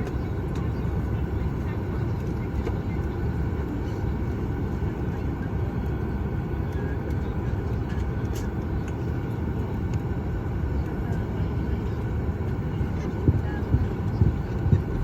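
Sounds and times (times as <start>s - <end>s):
aircraft cabin rumble and air rush: 0.0s - 15.0s
faint hum: 0.0s - 15.0s.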